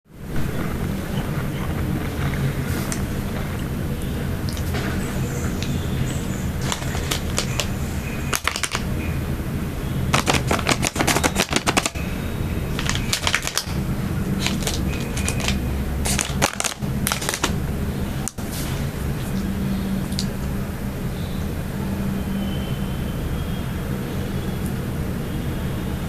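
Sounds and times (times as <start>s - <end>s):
low hum: 0.1s - 25.6s
snack wrapper crackling: 0.4s - 3.8s, 4.4s - 9.0s, 10.1s - 12.1s, 12.7s - 17.6s.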